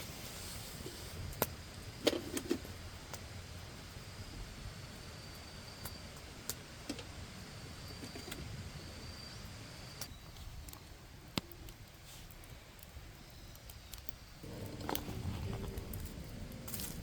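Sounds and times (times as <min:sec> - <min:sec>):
campfire burning: 0:00.0 - 0:17.0
wood popping in flames: 0:00.0 - 0:17.0
rustling: 0:14.4 - 0:17.0.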